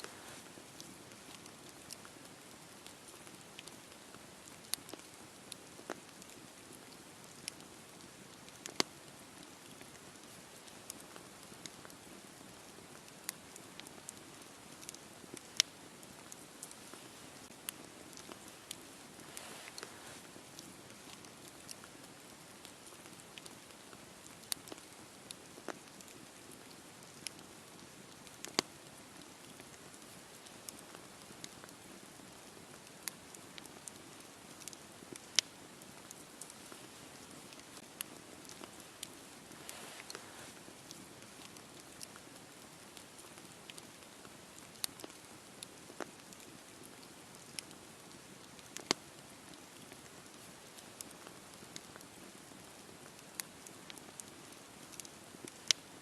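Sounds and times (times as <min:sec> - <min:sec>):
fire crackling and popping: 0:00.0 - 0:56.0
campfire flame rushing: 0:14.8 - 0:21.8, 0:33.1 - 0:41.6
fire hissing: 0:15.8 - 0:21.1, 0:38.5 - 0:41.0.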